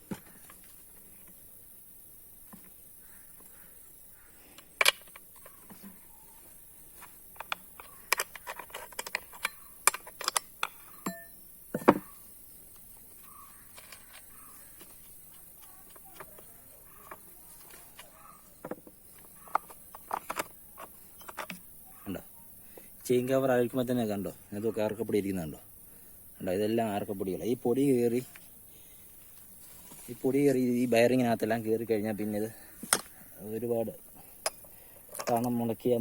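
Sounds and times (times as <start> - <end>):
metallic clicks and clinks: 7.3 - 12.0, 34.4 - 35.7.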